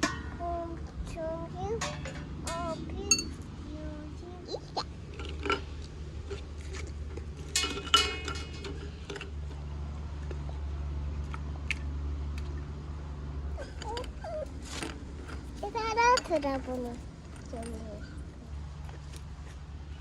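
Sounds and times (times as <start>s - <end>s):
low steady hum: 0.0s - 20.0s
dishes and utensils clattering: 1.7s - 3.4s, 7.4s - 9.3s
metal clink: 1.8s - 3.4s, 7.5s - 9.2s.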